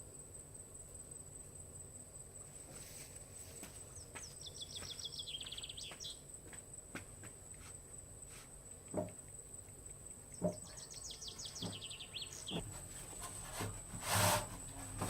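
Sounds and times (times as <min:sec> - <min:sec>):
rustling scrape: 0:02.6 - 0:03.7, 0:11.4 - 0:15.0
dull knocks: 0:08.9 - 0:09.2, 0:10.4 - 0:10.8, 0:11.5 - 0:15.0.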